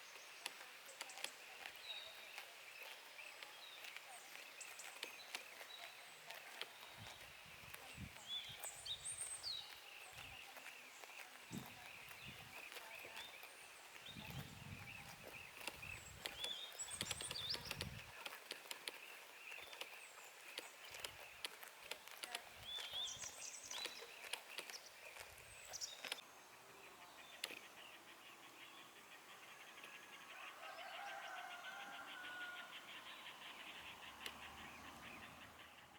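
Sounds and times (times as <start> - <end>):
small birds chirping: 0.0 - 35.9
crisp clicks and rustles: 0.1 - 26.3.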